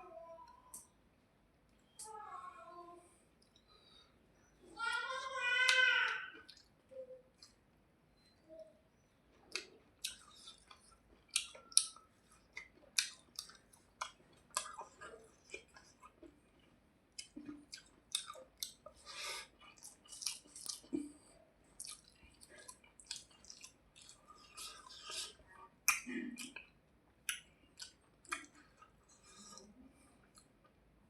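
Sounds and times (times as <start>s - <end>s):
chewing with wet mouth smacks: 6.4s - 7.6s, 9.3s - 30.8s.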